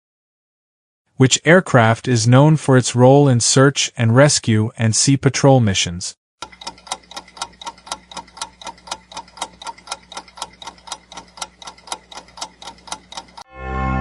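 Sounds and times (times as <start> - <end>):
clock ticking: 6.4 - 13.5.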